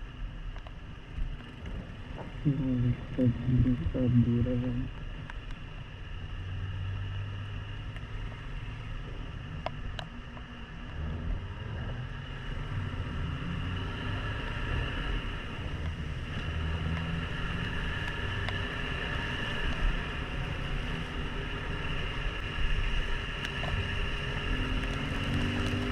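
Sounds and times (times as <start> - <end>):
wind: 0.0 - 25.9
motorcycle engine running: 14.0 - 25.9.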